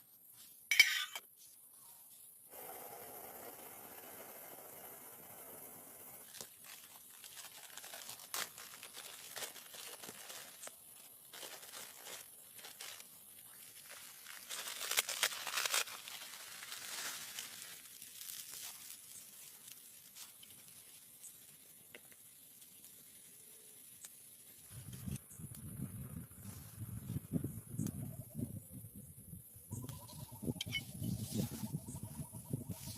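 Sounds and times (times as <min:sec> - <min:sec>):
crinkling and tearing: 0:06.3 - 0:21.6.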